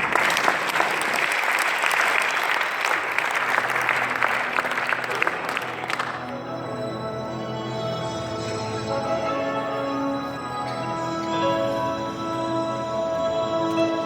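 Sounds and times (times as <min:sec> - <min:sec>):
audience applauding: 0:00.0 - 0:06.6
soft music: 0:03.5 - 0:14.0.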